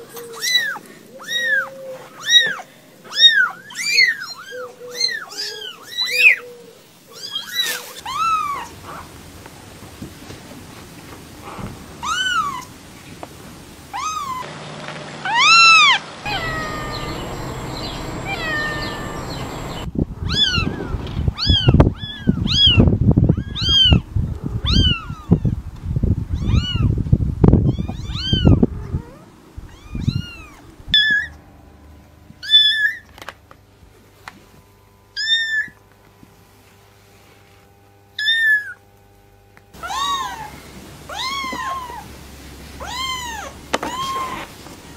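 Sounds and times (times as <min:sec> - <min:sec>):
kittens mewing: 0:00.0 - 0:06.4, 0:15.3 - 0:20.8, 0:39.8 - 0:42.0
low rumbling noise: 0:16.2 - 0:21.1.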